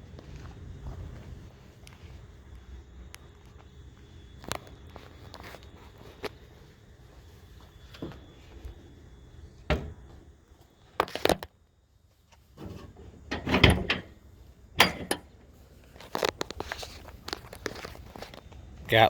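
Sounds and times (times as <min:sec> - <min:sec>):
knocks and clunks of a latch: 0:13.3 - 0:14.2, 0:14.8 - 0:15.3.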